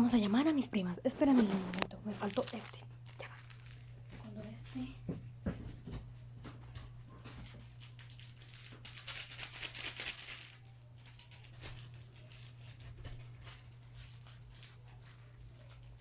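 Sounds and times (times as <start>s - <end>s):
steady low hum: 0.0s - 16.0s
plastic packaging crinkling: 1.2s - 5.0s, 7.4s - 16.0s.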